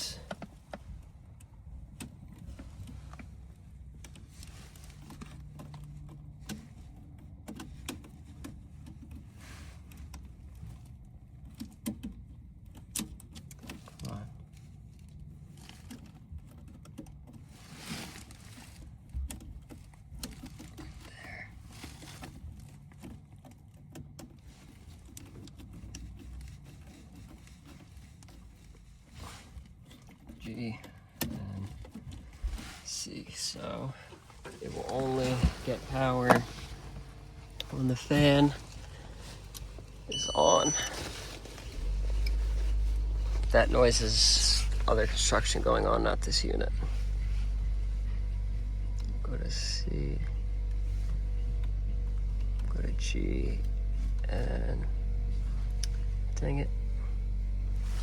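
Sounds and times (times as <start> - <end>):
low steady hum: 24.4 - 58.0
steady low rumble: 32.3 - 58.0
steady low tone: 34.3 - 58.0.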